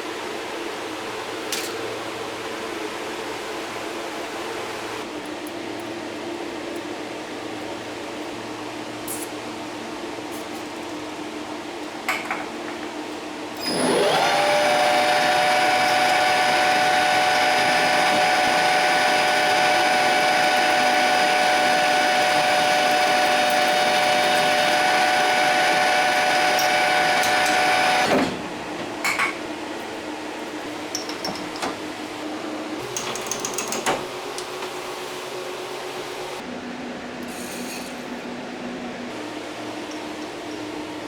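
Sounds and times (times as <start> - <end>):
electric power tool whining: 13.6 - 28.2.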